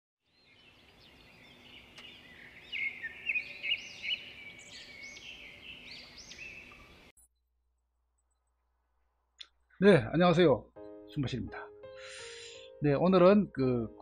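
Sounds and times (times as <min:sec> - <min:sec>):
forest birds singing: 0:00.2 - 0:07.1, 0:10.8 - 0:12.8.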